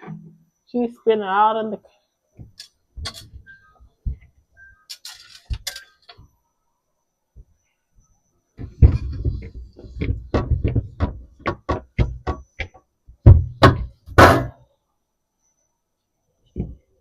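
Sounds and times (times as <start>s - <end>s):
kitchen items knocking and clicking: 2.5s - 3.4s, 8.6s - 14.6s.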